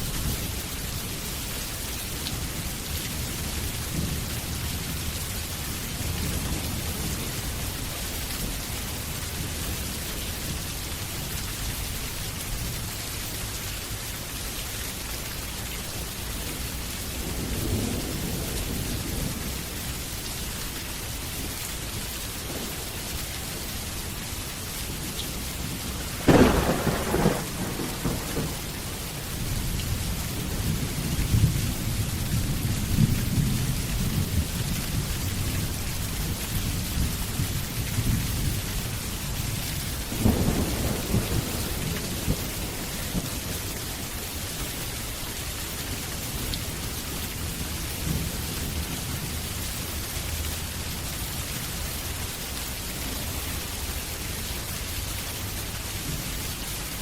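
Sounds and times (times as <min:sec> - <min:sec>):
steady rain falling: 0:00.0 - 0:57.0
rolling thunder: 0:24.9 - 0:38.7, 0:39.4 - 0:43.6
sharp thunderclap: 0:26.2 - 0:29.1, 0:40.0 - 0:43.4.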